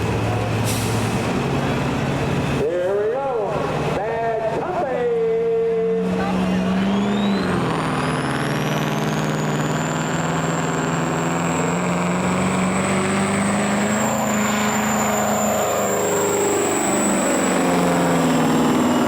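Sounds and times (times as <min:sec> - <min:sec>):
vehicle engine running hard: 0:00.0 - 0:19.0
high engine whine: 0:03.4 - 0:19.0.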